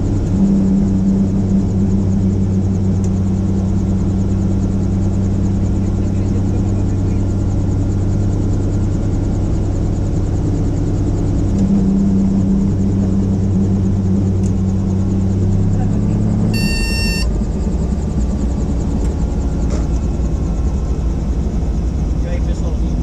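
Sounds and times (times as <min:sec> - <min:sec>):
helicopter rotor drone: 0:00.0 - 0:23.0.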